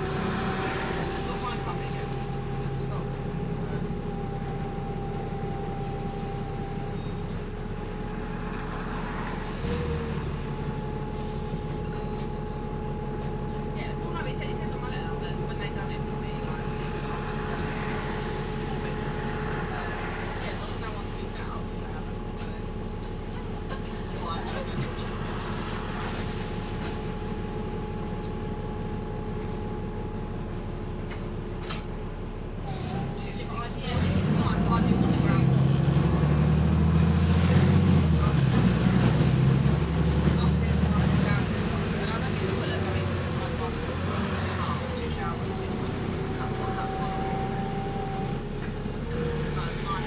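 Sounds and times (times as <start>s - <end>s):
bus engine drone: 0.0s - 50.0s
bus diesel engine chuffing: 1.2s - 25.4s.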